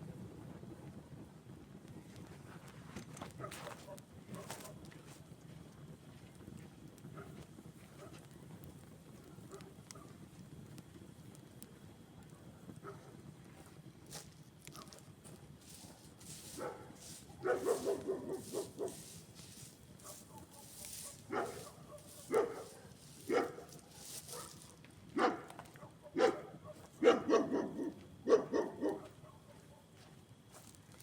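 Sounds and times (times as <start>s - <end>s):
dog barking: 3.4s - 4.8s, 8.0s - 8.2s, 9.4s - 10.1s, 12.4s - 13.1s, 15.9s - 19.2s, 20.0s - 29.9s.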